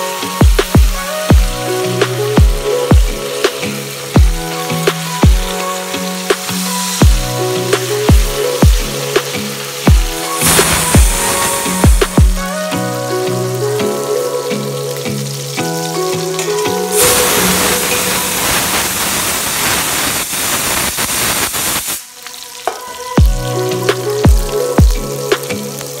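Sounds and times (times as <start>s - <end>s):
electronic music with deep bass: 0.0s - 19.2s, 23.2s - 26.0s
chicken frying in oil: 13.5s - 26.0s.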